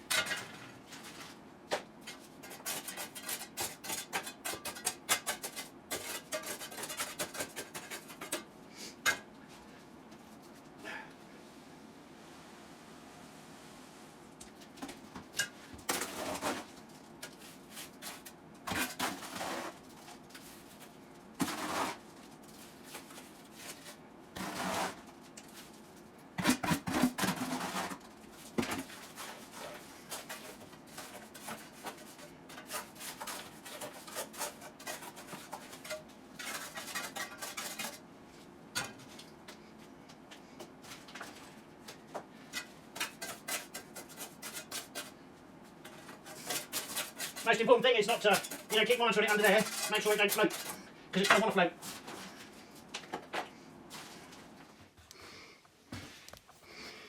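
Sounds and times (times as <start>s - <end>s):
metal tool scraping wet concrete: 46.3s - 51.6s.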